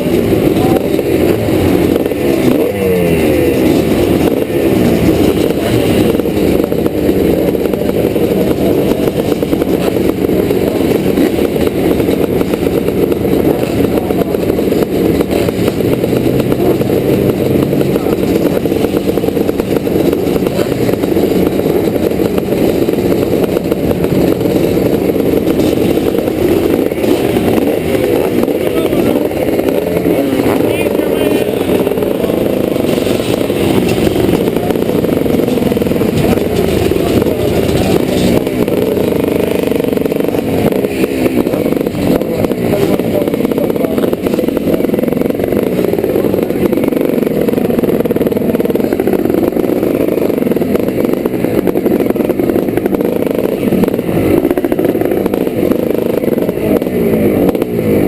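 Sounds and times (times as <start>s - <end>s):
motocross bike engines revving: 0.0s - 58.0s.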